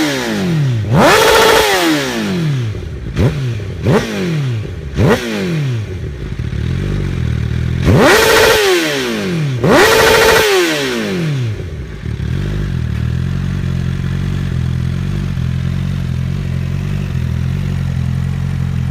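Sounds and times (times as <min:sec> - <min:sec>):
motorcycle engine idling: 0:00.0 - 0:18.9
motorcycle engine revving: 0:00.0 - 0:18.9.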